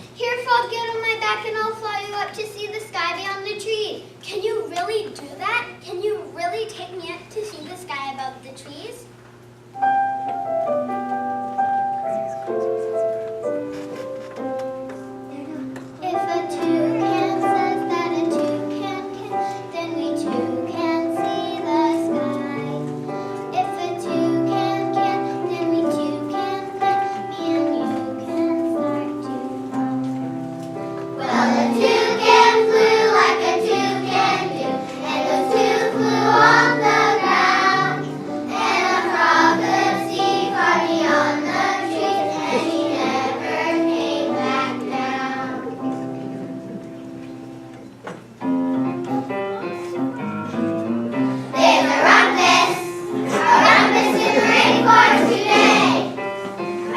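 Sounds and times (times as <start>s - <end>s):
backing music: 9.8s - 56.9s
children singing in chorus: 31.2s - 45.7s, 51.8s - 56.2s.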